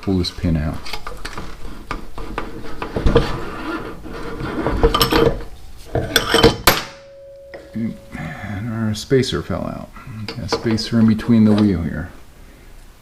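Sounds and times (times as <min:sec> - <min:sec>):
metallic clinks and knocks: 0:04.8 - 0:07.8.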